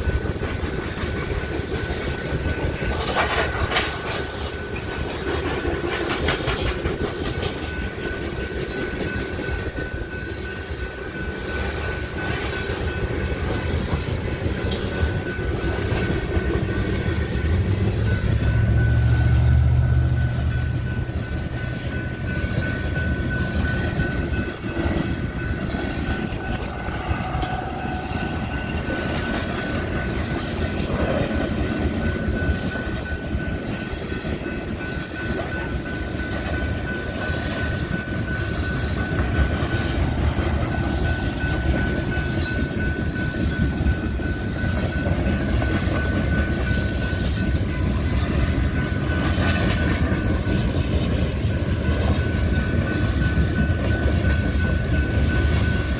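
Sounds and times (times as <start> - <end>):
train rumbling on rails: 0.0 - 55.9
thin high tone: 14.6 - 30.0.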